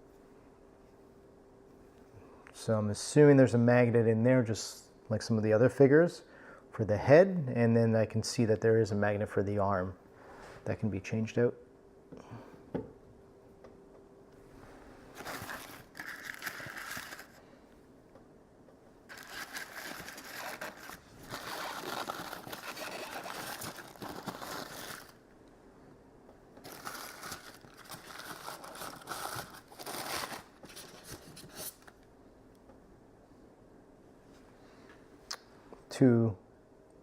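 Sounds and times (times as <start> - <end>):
packaging crinkling: 15.1 - 17.4, 19.1 - 25.2, 26.6 - 31.9.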